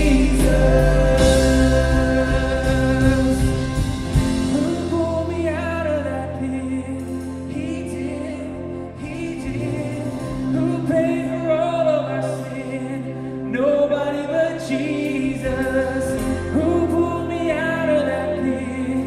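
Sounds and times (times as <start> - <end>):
voices singing together: 0.0 - 5.8
worship band playing live: 0.0 - 19.0.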